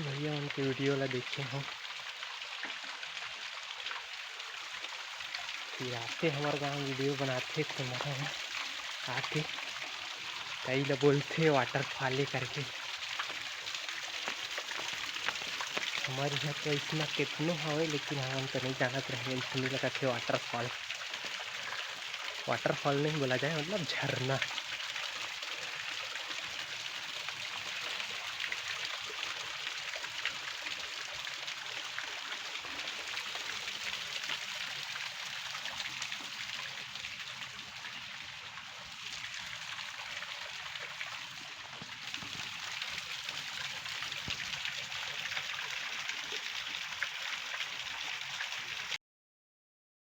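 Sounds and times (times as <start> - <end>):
waterfall rushing: 14.7 - 20.8, 21.5 - 24.5.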